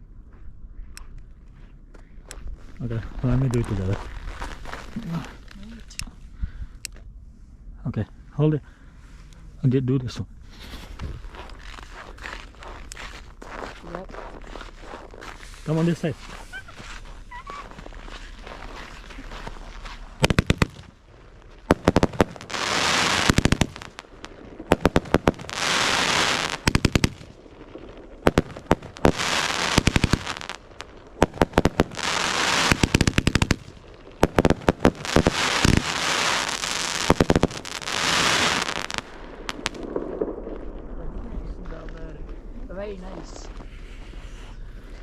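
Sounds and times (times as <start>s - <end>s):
fireworks crackling pops: 2.2s - 6.2s, 10.4s - 45.0s
fireworks fizzing hiss: 14.8s - 40.0s.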